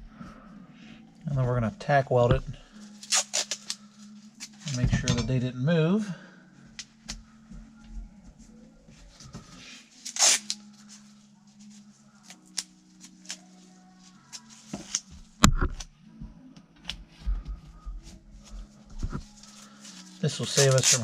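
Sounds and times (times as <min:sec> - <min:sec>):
tape ripped off a roll: 0:03.0 - 0:03.8, 0:10.0 - 0:10.6, 0:20.6 - 0:21.0.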